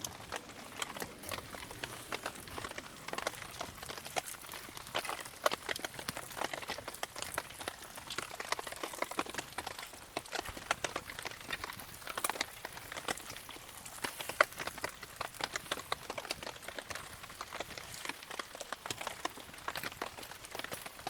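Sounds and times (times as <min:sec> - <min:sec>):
campfire crackling: 0:00.0 - 0:21.0
raindrops falling: 0:00.0 - 0:21.0.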